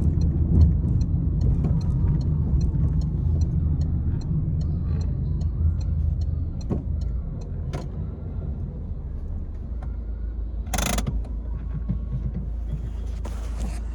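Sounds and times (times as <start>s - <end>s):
light regular ticking: 0.0s - 8.0s, 10.7s - 11.4s
car engine running: 0.0s - 13.9s.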